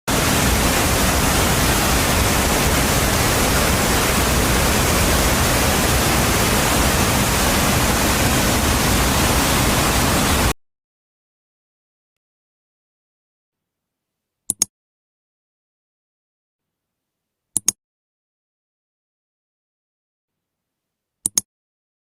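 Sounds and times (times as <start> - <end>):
steady rushing noise: 0.1 - 10.5.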